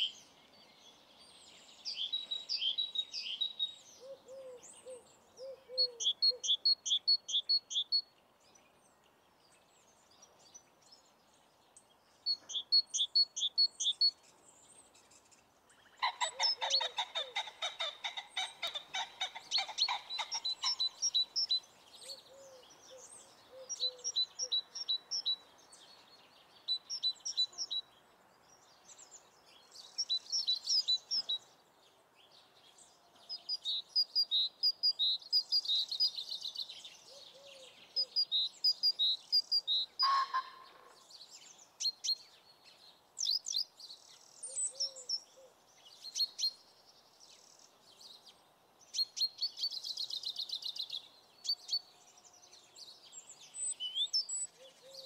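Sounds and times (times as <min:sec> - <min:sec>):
birds chirping: 0:00.0 - 0:31.6
rapid pulsed bird calls: 0:15.9 - 0:25.5.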